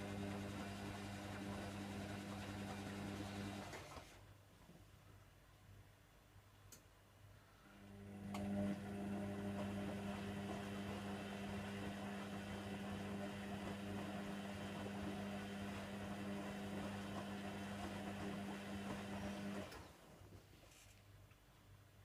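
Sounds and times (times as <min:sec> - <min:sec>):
washer dryer running: 0:00.0 - 0:04.0, 0:07.9 - 0:20.1.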